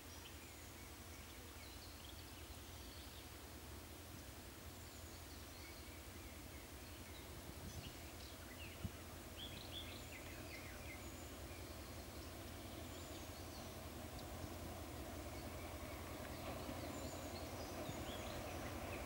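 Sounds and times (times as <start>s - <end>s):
faint outdoor background: 0.0s - 19.0s
small birds chirping: 4.8s - 19.0s.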